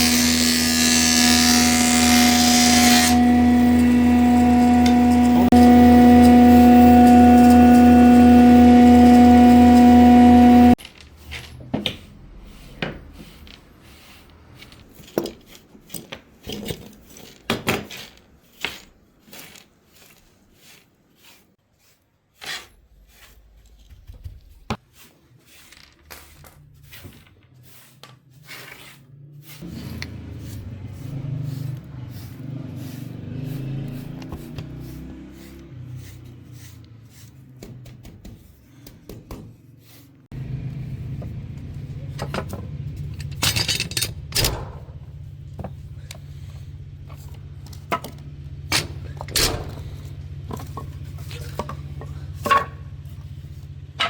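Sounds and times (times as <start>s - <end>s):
power tool motor whining: 0.0s - 10.8s.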